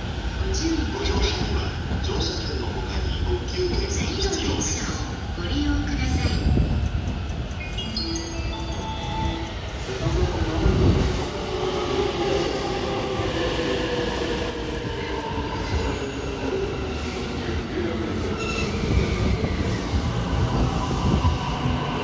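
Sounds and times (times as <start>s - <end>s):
train rumbling past: 0.0s - 22.0s
wheels and brakes squealing: 18.3s - 19.9s.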